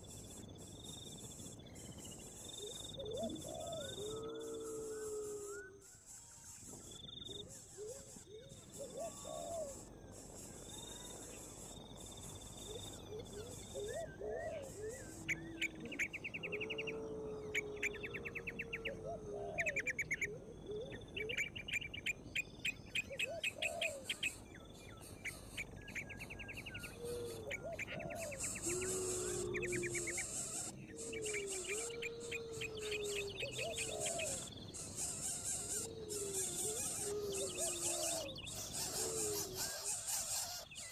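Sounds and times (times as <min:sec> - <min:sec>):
rapid bird trills: 0:19.6 - 0:40.9
high insect buzz: 0:34.7 - 0:37.1.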